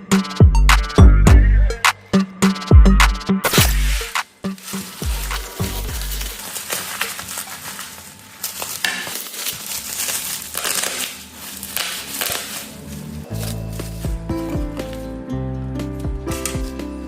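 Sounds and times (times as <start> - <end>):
smartphone cracking apart: 8.4 - 12.9.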